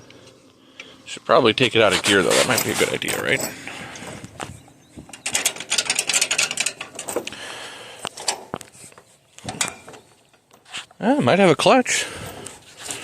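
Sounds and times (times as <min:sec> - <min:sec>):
gear shift clicking and rattling: 0:01.9 - 0:07.4, 0:08.1 - 0:10.7.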